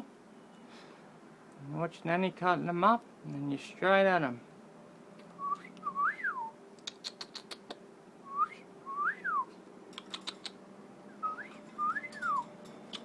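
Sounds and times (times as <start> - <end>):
cockatiel whistling: 11.2 - 12.5.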